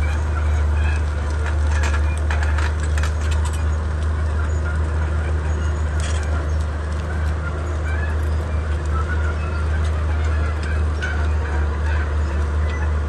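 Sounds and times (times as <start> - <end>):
bulldozer diesel engine droning: 0.0 - 13.0
sharp clicks and cracks: 0.8 - 7.4.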